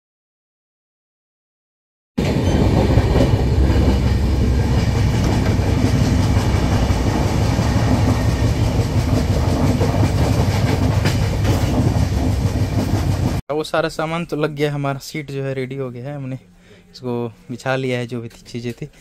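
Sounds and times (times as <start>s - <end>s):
train wheels rumbling on rails: 2.2s - 13.4s.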